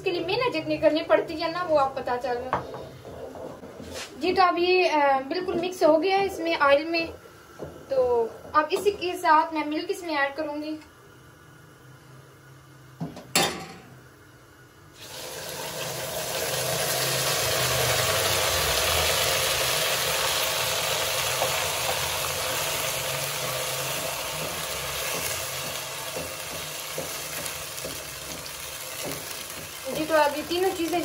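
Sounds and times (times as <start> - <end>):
batter sizzling in hot fat: 15.0 - 31.0.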